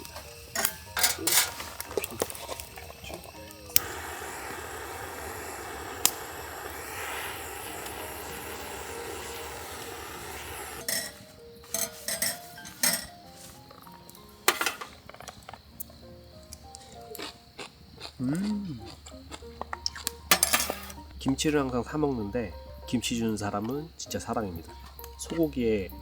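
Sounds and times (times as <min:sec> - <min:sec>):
metallic clinks of utensils: 0:00.0 - 0:03.9, 0:10.8 - 0:13.9, 0:14.5 - 0:15.5, 0:20.0 - 0:21.0
oil hissing on hot griddle: 0:00.0 - 0:17.2, 0:20.1 - 0:21.3
soft background music: 0:00.0 - 0:26.0.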